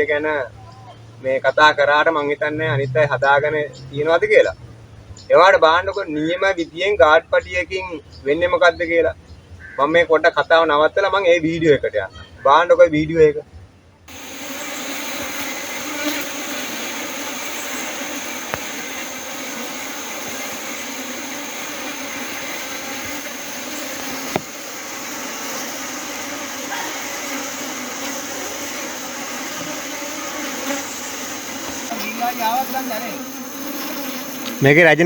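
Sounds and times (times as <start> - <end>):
honeybee swarm buzzing: 14.1 - 35.0.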